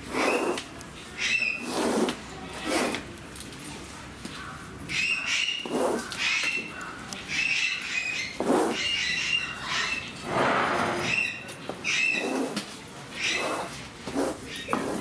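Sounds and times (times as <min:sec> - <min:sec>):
birds chirping: 0:04.4 - 0:12.5
coarse low bird calls: 0:04.4 - 0:13.7.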